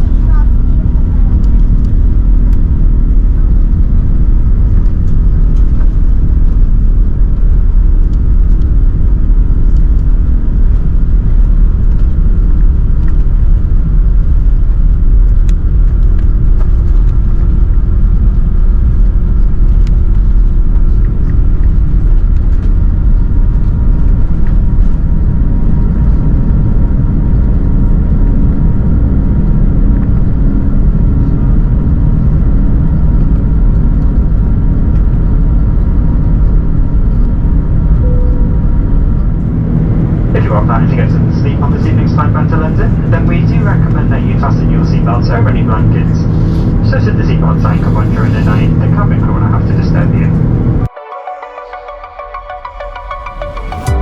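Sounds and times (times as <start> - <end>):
aircraft cabin engine rumble: 0.0 - 50.9
faint steady tones: 38.0 - 54.0.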